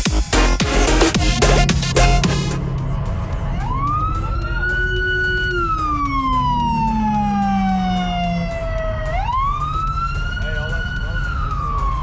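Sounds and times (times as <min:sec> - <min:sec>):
steady low rumble: 0:00.0 - 0:12.0
siren wailing: 0:00.7 - 0:12.0.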